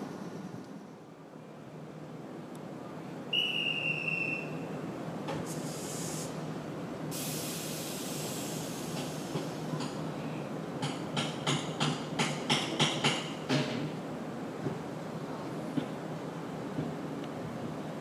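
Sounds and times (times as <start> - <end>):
short high whistle: 3.3 - 4.6
compressed air hissing: 5.5 - 6.4, 7.1 - 9.4
train clacking: 8.2 - 14.9, 16.7 - 17.6.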